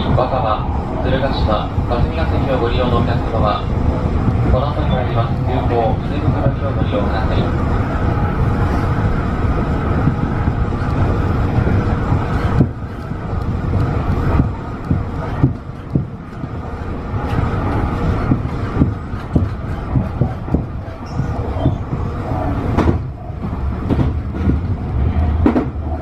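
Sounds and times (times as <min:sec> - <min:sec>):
train wheels rumbling: 0:00.0 - 0:26.0
wheels knocking on track: 0:09.3 - 0:26.0.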